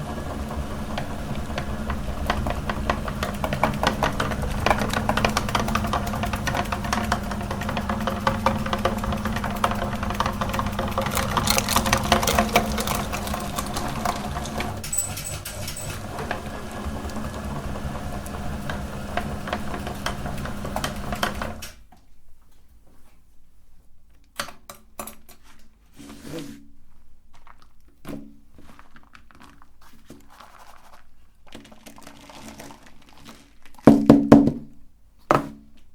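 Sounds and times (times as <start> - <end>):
meat grinder motor hum: 0.0 - 21.6
chocolate crackling in grinder: 0.1 - 21.6, 28.5 - 33.9.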